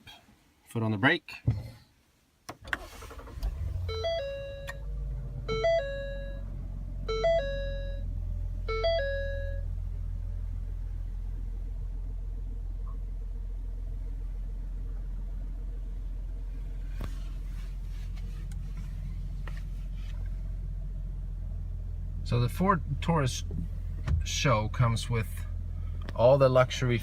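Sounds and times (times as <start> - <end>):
car engine idling: 2.8 - 27.0
dashboard warning chime: 3.7 - 4.8, 5.4 - 8.1, 8.7 - 9.7.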